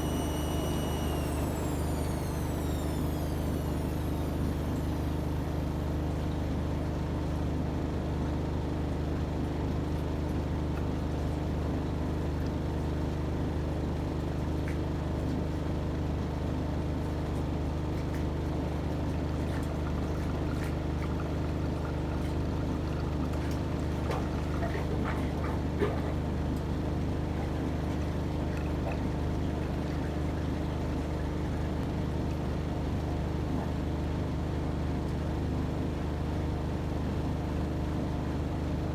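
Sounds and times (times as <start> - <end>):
washing machine motor hum: 0.0 - 7.2.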